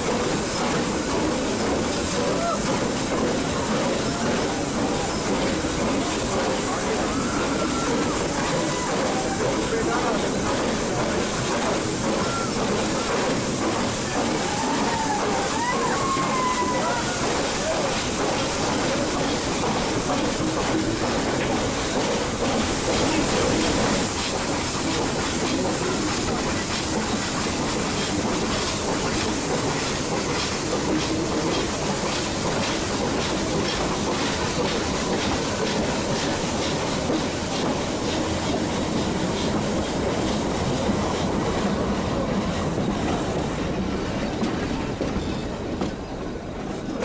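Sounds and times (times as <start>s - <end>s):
train wheels clattering on rails: 0.0s - 47.0s.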